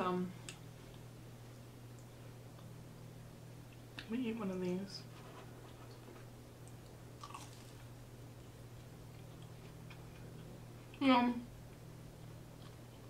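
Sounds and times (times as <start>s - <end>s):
low steady hum: 0.0s - 13.0s
close chewing: 7.2s - 7.9s.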